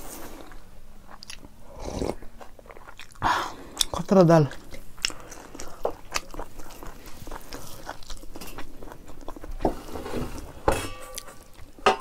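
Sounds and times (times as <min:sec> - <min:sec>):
chewing with wet mouth clicks: 0:00.5 - 0:09.5.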